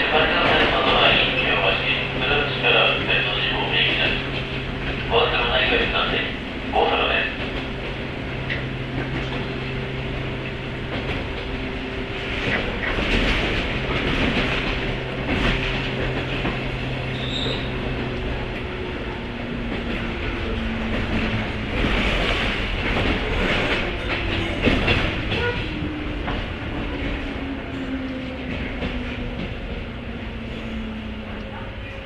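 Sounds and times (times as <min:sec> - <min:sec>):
train motor hum: 0:00.0 - 0:32.0
wheels rumbling: 0:00.0 - 0:32.0
high wheel squeal: 0:17.1 - 0:17.8.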